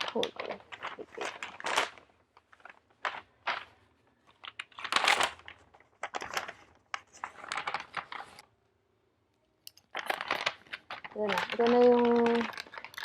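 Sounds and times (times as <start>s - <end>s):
plastic packaging crinkling: 0.0s - 8.5s, 9.7s - 13.0s.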